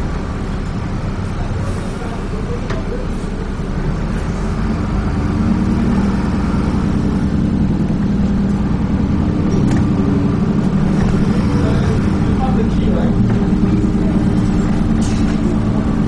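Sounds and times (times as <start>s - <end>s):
bus diesel engine drone: 0.0s - 16.0s.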